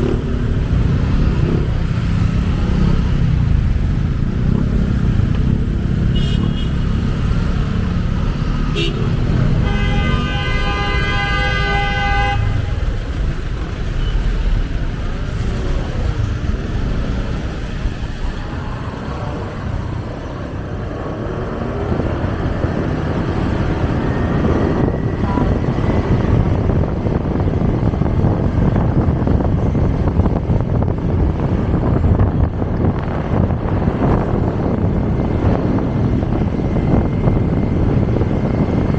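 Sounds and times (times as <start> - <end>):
rumble of traffic and wind: 0.0 - 38.9
vehicle horn: 6.0 - 7.0, 8.7 - 12.9.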